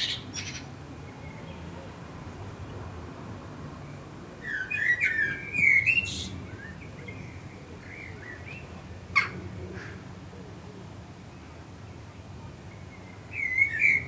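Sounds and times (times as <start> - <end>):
bird chirping: 0.0 - 1.8, 3.9 - 9.4, 12.7 - 14.0
faint low background noise: 0.0 - 14.0.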